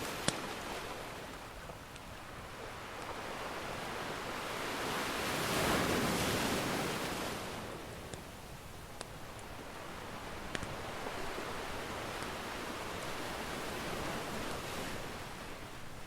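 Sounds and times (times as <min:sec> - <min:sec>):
ocean wave surging: 0:00.0 - 0:01.6, 0:02.2 - 0:08.1
wood fire popping: 0:10.3 - 0:11.4.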